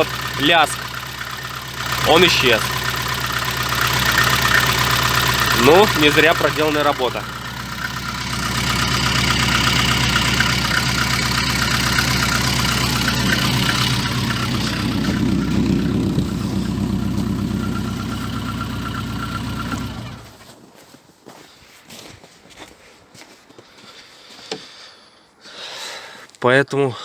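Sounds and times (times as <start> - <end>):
low bass from leaking muffler: 0.0 - 20.4
car engine running: 0.0 - 20.5.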